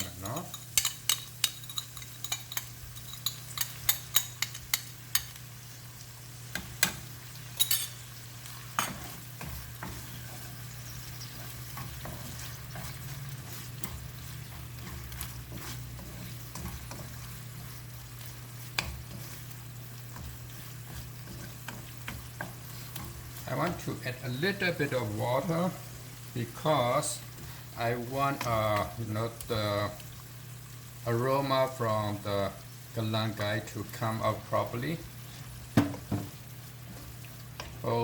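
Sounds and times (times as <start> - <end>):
curry sauce sizzling in a pan: 0.0 - 38.0
spatula scraping and knocking on pan: 8.7 - 23.8, 35.7 - 37.8.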